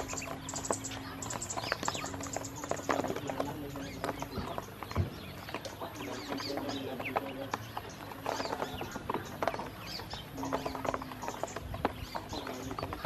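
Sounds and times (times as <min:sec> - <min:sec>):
bills pecking at feed: 0:00.0 - 0:13.0
ducklings peeping: 0:00.0 - 0:13.0.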